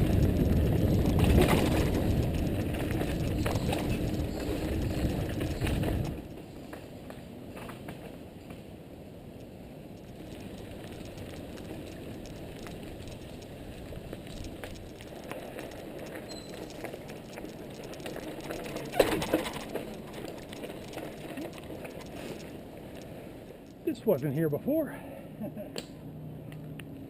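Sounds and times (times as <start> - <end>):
bike clattering: 0.0 - 6.5, 10.0 - 23.7
bike tyres rumbling on dirt: 0.0 - 6.8, 9.8 - 23.6
bike clicks and rattles: 0.0 - 6.9, 9.4 - 24.3.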